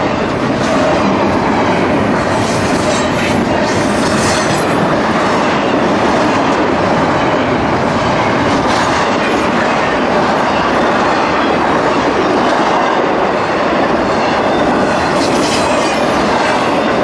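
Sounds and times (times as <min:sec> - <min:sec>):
freight train wheels clattering: 0:00.0 - 0:17.0.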